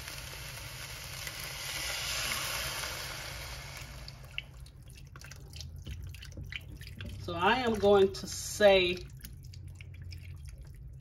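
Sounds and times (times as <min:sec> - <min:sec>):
meat sizzling in a skillet: 0:00.0 - 0:04.3
broth pouring: 0:00.0 - 0:11.0.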